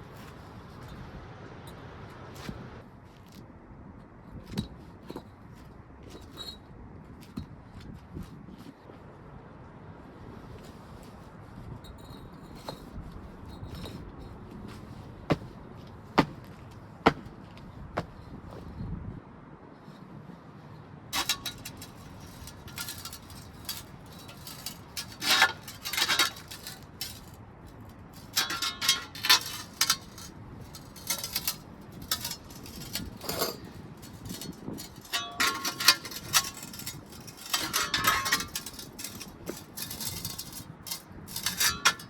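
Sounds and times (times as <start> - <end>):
stone pavers clinking: 16.2 - 17.4, 21.2 - 42.0.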